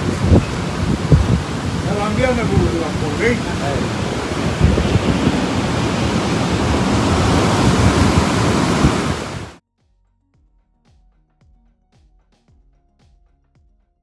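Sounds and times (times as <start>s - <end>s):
rough sea surf: 0.0s - 9.6s
storm wind: 0.0s - 9.6s
wind buffeting microphone: 0.0s - 9.6s.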